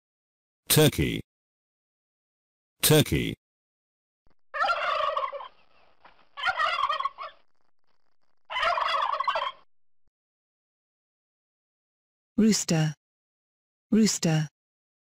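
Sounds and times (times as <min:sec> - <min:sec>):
turkey gobbling: 0:04.5 - 0:07.5, 0:08.4 - 0:09.7.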